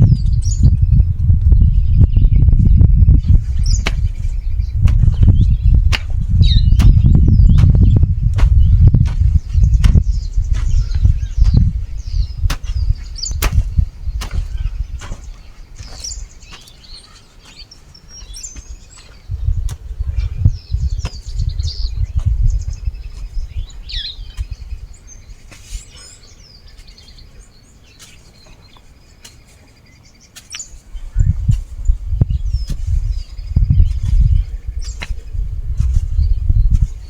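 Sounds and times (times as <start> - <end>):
low rumble: 0.0 - 15.5
birds chirping and trilling: 0.0 - 37.0.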